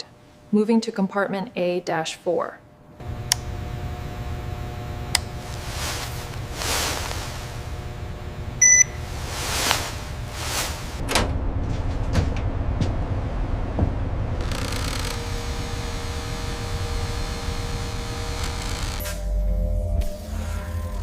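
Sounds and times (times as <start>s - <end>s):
low mechanical hum: 2.6s - 21.0s
short electronic beep: 8.6s - 9.0s.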